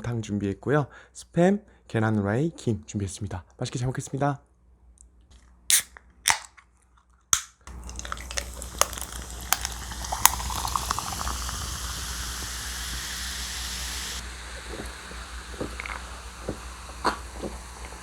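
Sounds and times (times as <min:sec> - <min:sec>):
little pops: 0:07.4 - 0:13.2
stew bubbling and hissing: 0:07.7 - 0:18.0.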